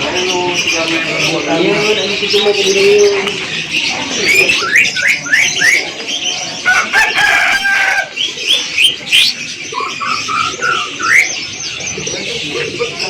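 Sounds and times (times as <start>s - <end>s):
caged birds calling: 0.0s - 13.0s
rooster crowing: 6.6s - 8.2s.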